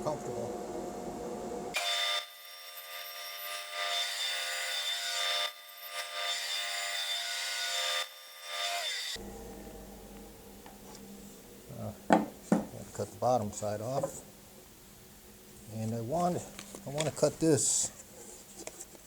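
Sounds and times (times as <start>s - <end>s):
power saw cutting wood: 1.7s - 9.2s.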